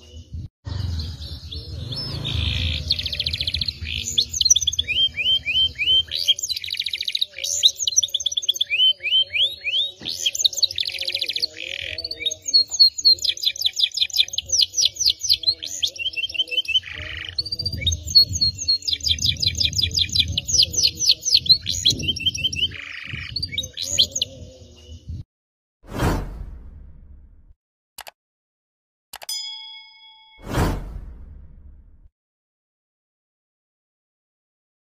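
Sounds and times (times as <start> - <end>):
canary singing: 0.0 - 25.1.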